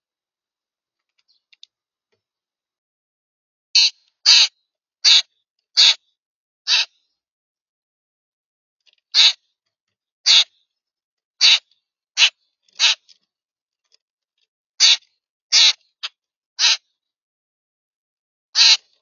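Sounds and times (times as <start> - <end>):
bird harsh crow-like calls: 3.8 - 6.1, 6.7 - 7.0, 9.1 - 9.5, 10.3 - 10.6, 11.4 - 13.1, 14.8 - 16.9, 18.6 - 19.0.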